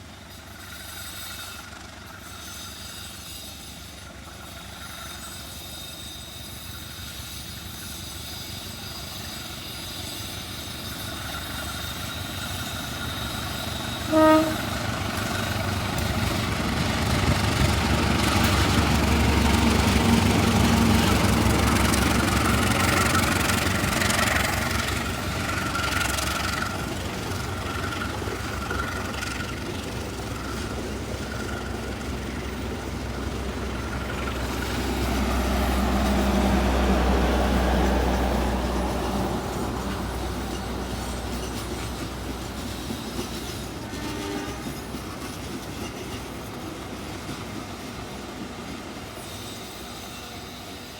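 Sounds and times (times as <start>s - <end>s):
train passing rumble: 0.0s - 50.9s
faint thin squeal: 0.2s - 16.4s, 38.8s - 46.3s, 49.1s - 50.9s.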